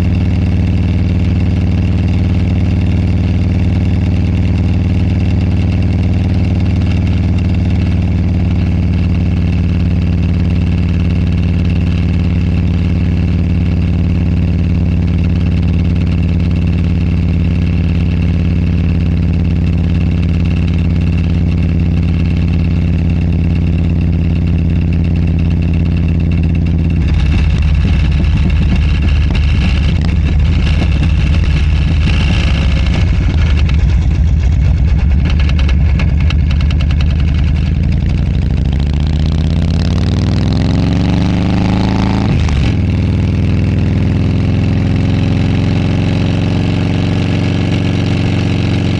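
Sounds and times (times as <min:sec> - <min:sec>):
motorcycle engine running: 0:00.0 - 0:48.9
microphone clip rattling: 0:26.6 - 0:38.8.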